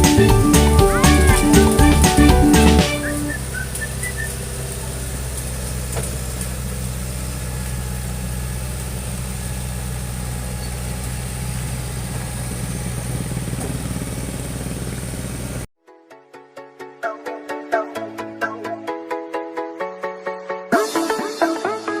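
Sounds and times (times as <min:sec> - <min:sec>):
excavator engine running: 0:00.0 - 0:15.7.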